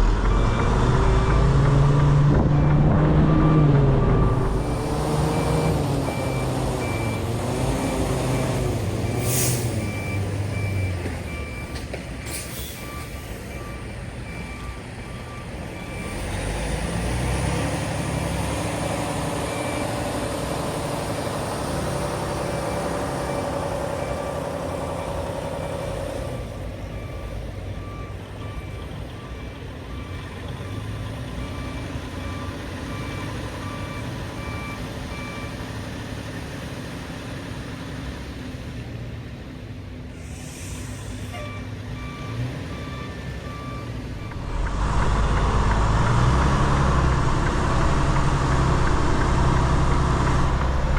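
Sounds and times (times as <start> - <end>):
diesel engine running: 0.0 - 35.4, 42.8 - 50.9
air brake hisses: 9.2 - 9.8, 12.2 - 13.5, 40.1 - 41.5.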